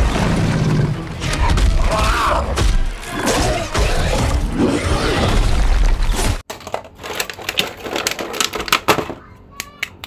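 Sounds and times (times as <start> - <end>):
action film music: 0.0 - 4.6.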